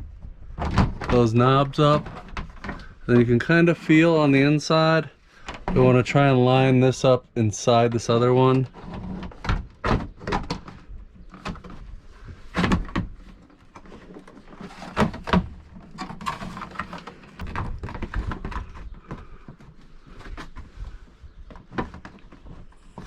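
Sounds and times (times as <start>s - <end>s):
hollow plastic knocks and scraping: 0.0s - 4.0s, 8.6s - 23.0s.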